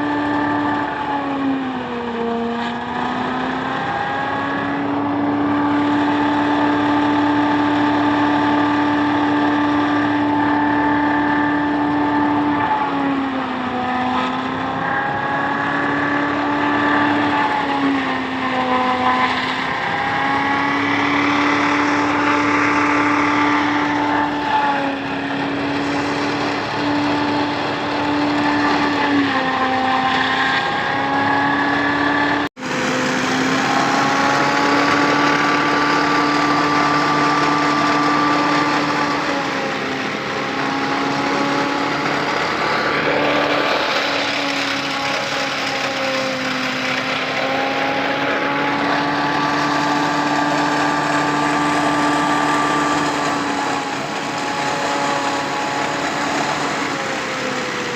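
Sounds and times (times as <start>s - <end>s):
machine humming: 0.0s - 57.9s
rushing noise: 19.4s - 57.9s.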